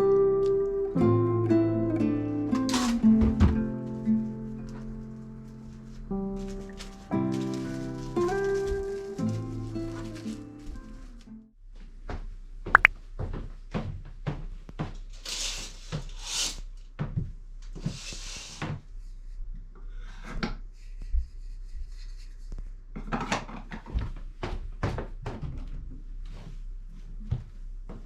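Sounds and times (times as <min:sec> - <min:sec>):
rustling or scraping: 0:04.7 - 0:11.3, 0:15.0 - 0:16.7.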